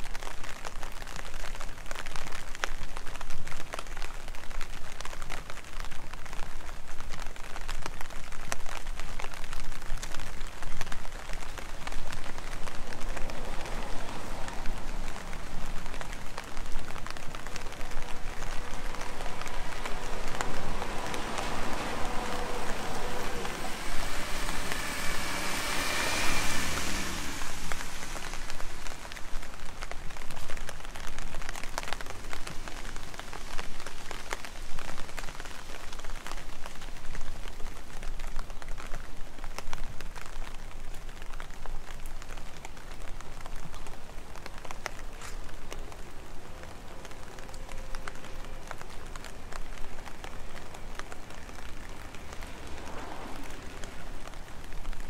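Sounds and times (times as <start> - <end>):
rain on wet streets: 0.0 - 55.0
raindrops ticking: 0.0 - 55.0
vehicle passing: 9.2 - 37.1, 42.3 - 55.0.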